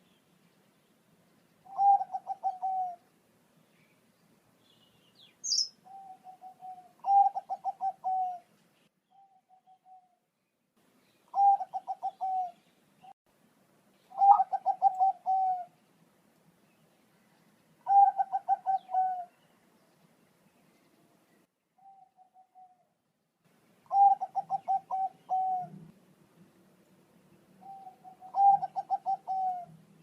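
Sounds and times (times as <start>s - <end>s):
dove cooing: 1.6s - 3.0s, 5.5s - 8.5s, 11.3s - 12.6s, 14.1s - 15.8s, 17.8s - 19.4s, 21.8s - 22.9s, 23.9s - 25.9s, 27.6s - 29.8s
high chirp: 5.2s - 6.0s.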